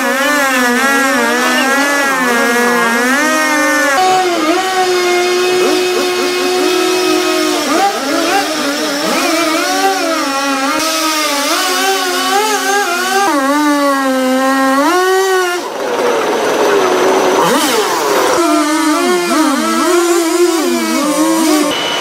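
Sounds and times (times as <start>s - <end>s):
chainsaw engine at high revs: 0.0s - 22.0s.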